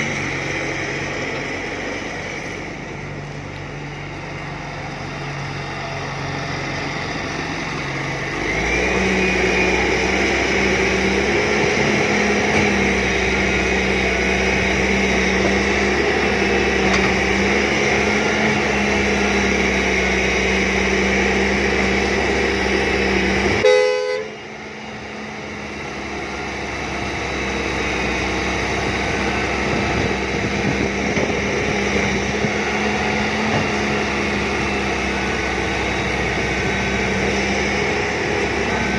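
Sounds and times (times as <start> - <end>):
excavator diesel engine revving: 0.0 - 38.9
brief horn toot: 23.6 - 24.4.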